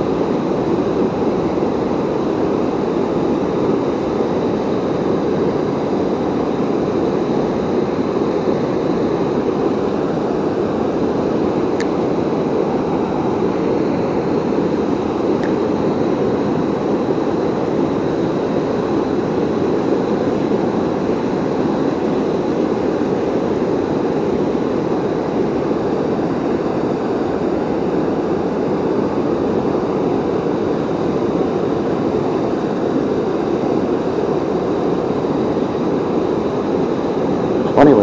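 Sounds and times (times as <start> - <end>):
waterfall roaring: 37.6 - 38.0.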